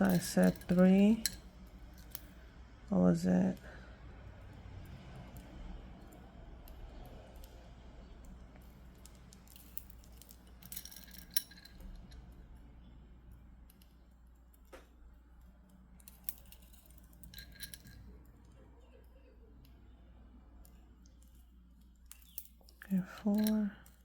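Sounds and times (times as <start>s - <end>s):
stone beads clicking together: 0.0s - 2.4s, 20.6s - 24.0s.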